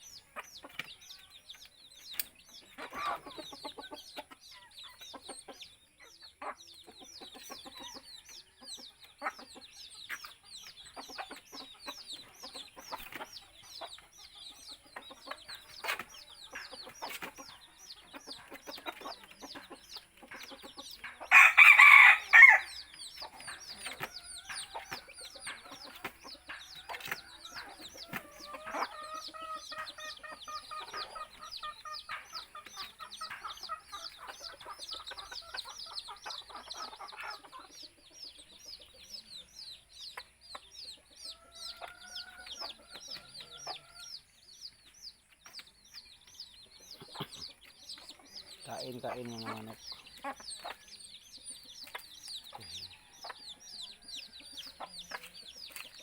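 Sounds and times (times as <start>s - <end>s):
chickens clucking: 0.0s - 56.0s
rooster crowing: 21.3s - 22.8s.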